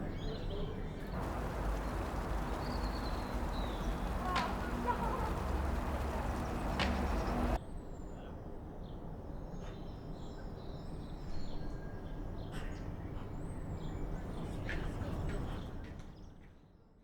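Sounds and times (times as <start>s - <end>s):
birds chirping: 1.1s - 7.6s
distant city traffic rumble: 1.1s - 7.6s
loud noisy ambience: 1.2s - 7.6s.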